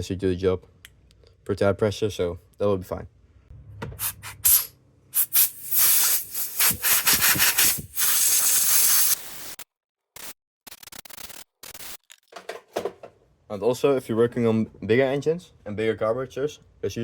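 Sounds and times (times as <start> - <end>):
compressed air blowgun hissing: 4.0 - 9.6.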